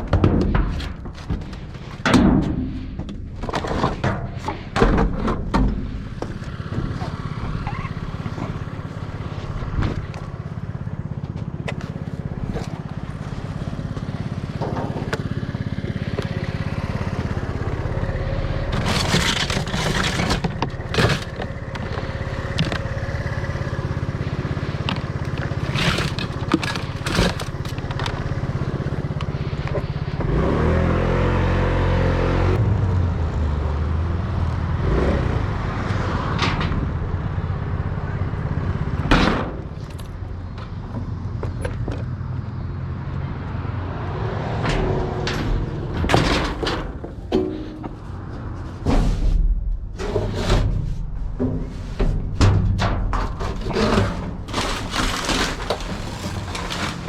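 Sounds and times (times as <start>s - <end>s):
vehicle engine running: 5.4s - 48.9s, 49.5s - 57.0s.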